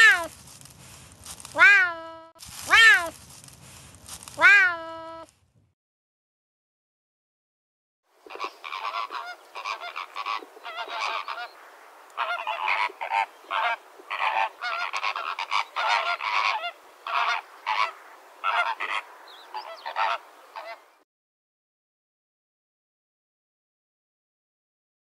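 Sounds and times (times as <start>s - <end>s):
flamingos honking: 8.2s - 20.9s.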